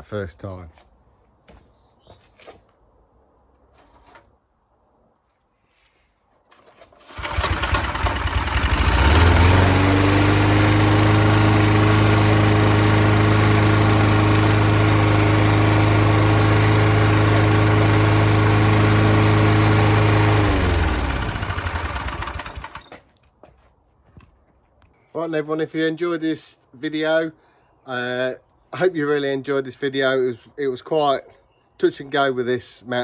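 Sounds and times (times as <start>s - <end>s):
lawn mower engine running: 6.9s - 23.0s.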